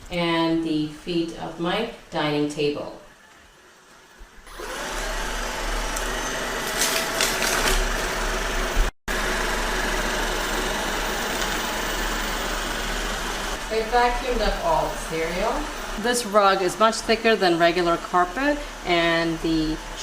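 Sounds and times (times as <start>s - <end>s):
robot vacuum whirring: 4.5s - 16.0s.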